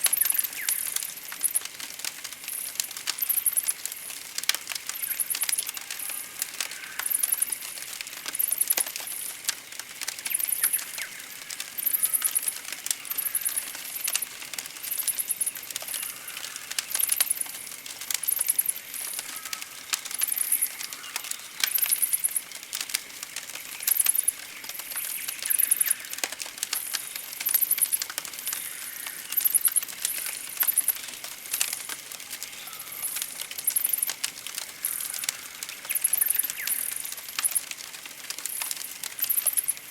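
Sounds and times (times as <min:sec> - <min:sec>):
campfire crackling and popping: 0:00.0 - 0:39.9
faint bird calls: 0:10.3 - 0:13.7, 0:15.1 - 0:17.4, 0:18.2 - 0:22.4, 0:32.4 - 0:34.1, 0:34.7 - 0:37.6.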